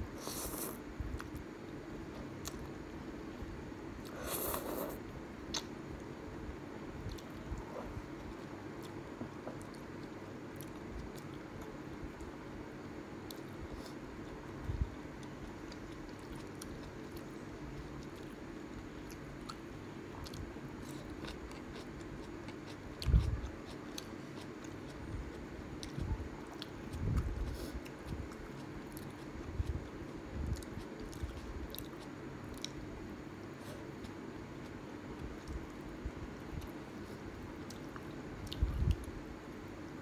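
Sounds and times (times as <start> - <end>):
faint steady hum: 0.0 - 40.0
chewing crunchy noodles: 13.2 - 35.8, 36.4 - 39.2.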